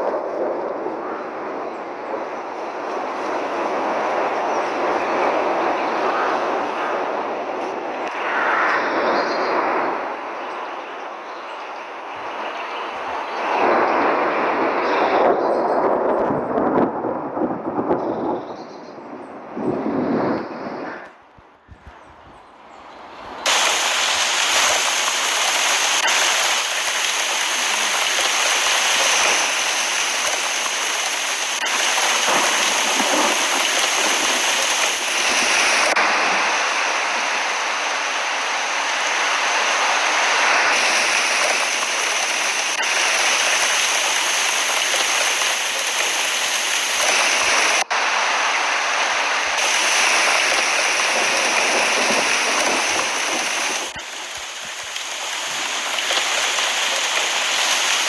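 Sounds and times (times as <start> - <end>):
heavy rain pouring: 21.4 - 58.0.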